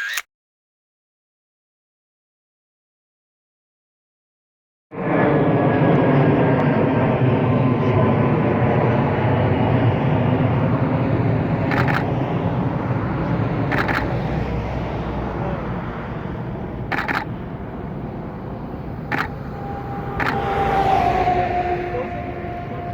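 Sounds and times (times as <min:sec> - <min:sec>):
camera shutter bursts: 0:00.0 - 0:00.2, 0:11.7 - 0:12.1, 0:13.7 - 0:14.1, 0:16.9 - 0:17.3, 0:19.1 - 0:19.3
jet engine roar: 0:04.9 - 0:22.9.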